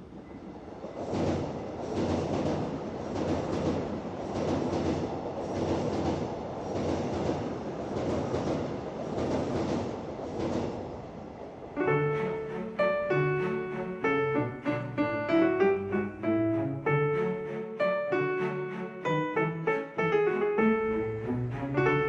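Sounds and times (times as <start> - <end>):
electric train rumbling: 0.0 - 22.0.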